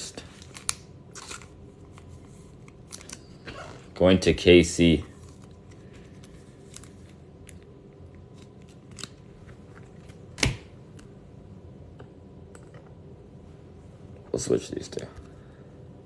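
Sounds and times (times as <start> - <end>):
cards clicking and rustling: 0.3 - 3.5, 5.2 - 7.6, 8.2 - 11.1.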